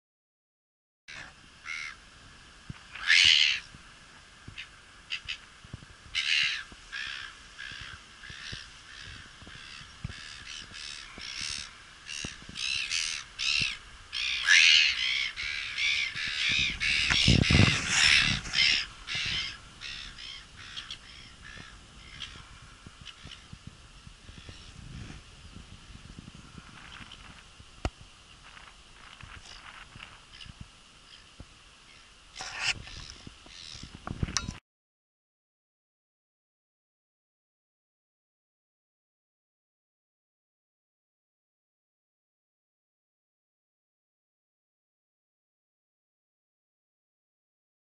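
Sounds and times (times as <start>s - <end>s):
birds calling with harsh cries: 1.1s - 2.0s, 2.9s - 3.7s, 4.6s - 5.5s, 6.1s - 22.4s, 23.0s - 23.6s, 24.2s - 24.8s, 29.3s - 34.0s.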